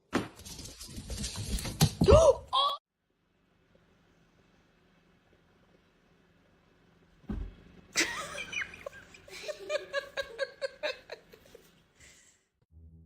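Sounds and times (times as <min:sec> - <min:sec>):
short thump: 0:07.2 - 0:07.6
person laughing hard: 0:08.0 - 0:11.6.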